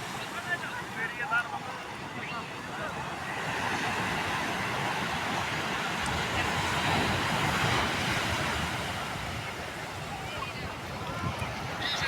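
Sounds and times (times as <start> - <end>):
waves breaking: 0.0 - 12.0
wind on microphone: 5.2 - 12.0.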